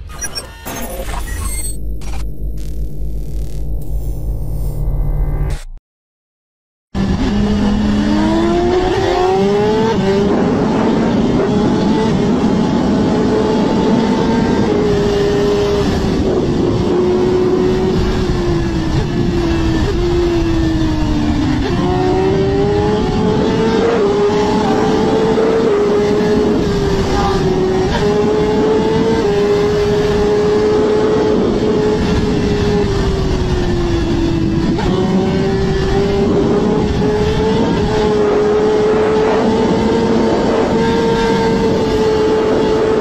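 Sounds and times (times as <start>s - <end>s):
racing motorcycle engines revving: 7.0s - 43.0s.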